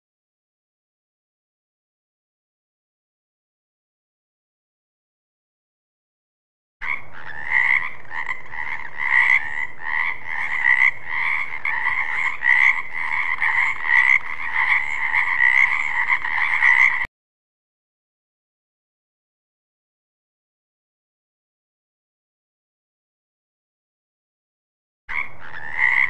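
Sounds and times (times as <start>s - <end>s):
frog croaking: 6.8s - 17.1s, 25.1s - 26.0s.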